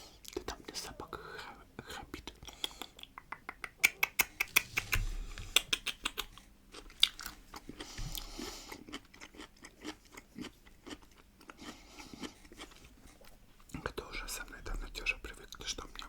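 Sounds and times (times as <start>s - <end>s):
crunching and chewing pickles: 5.6s - 16.0s.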